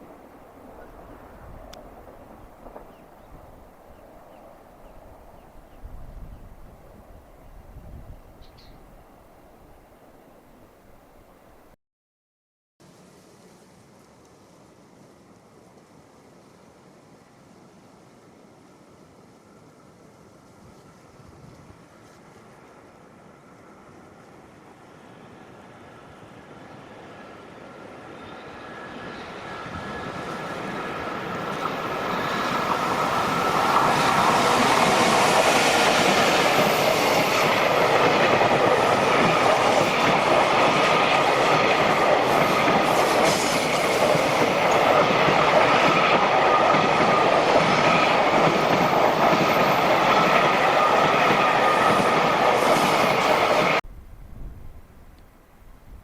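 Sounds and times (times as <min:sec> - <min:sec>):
freight train passing: 0:00.0 - 0:11.8, 0:14.6 - 0:55.8
wagons rushing over rails: 0:25.2 - 0:53.8.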